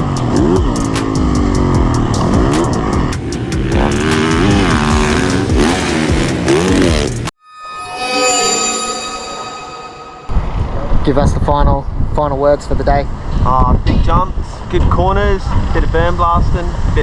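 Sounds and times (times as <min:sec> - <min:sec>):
motocross bike engine revving: 0:00.0 - 0:07.3.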